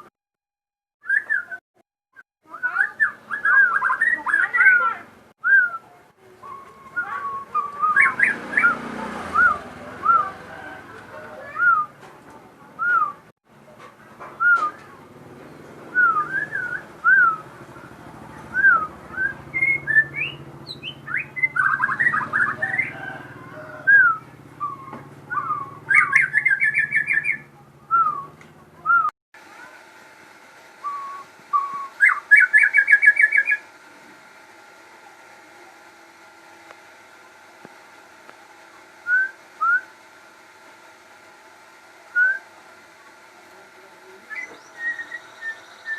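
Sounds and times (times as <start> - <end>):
songbird singing: 1.0 - 1.6, 2.4 - 12.1, 12.7 - 13.3, 14.2 - 29.1, 30.8 - 33.7, 42.1 - 42.5, 44.0 - 45.9.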